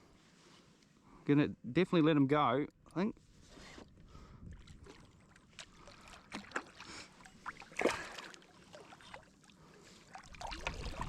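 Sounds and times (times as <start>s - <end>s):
faint water sounds: 2.6s - 11.0s.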